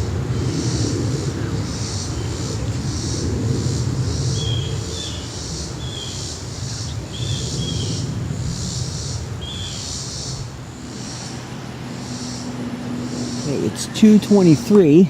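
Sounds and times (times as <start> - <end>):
jet airliner rumble: 0.0 - 15.0
high hissing pulse: 7.4 - 15.0
bird chirps: 8.7 - 14.7.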